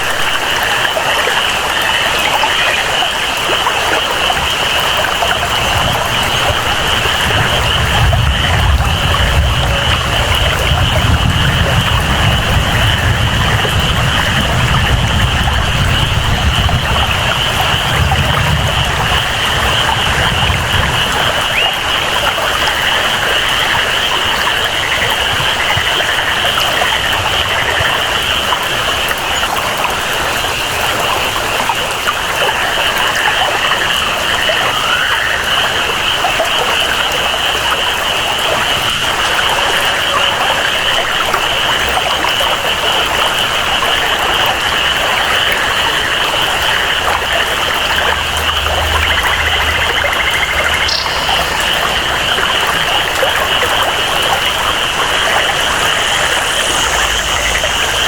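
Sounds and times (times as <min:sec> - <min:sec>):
flowing water: 0:00.0 - 0:58.0
steady rain: 0:00.0 - 0:58.0
high-pitched jungle chorus: 0:46.4 - 0:58.0
low rumble: 0:47.0 - 0:58.0.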